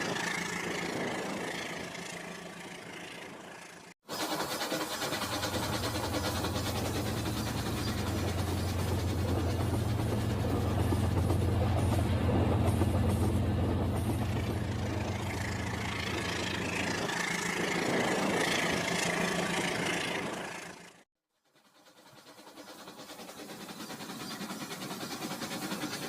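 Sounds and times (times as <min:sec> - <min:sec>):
toy train humming: 0:00.0 - 0:13.4.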